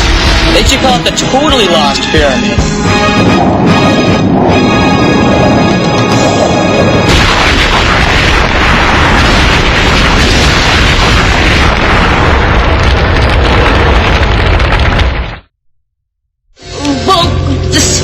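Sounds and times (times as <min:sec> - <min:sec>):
long loud explosion rumble: 0:02.6 - 0:15.5.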